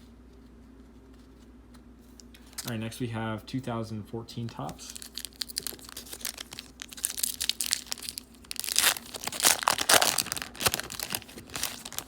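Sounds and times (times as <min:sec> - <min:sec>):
card pack wrapper tearing: 0:04.8 - 0:12.0
wrapper crinkling: 0:04.8 - 0:12.0.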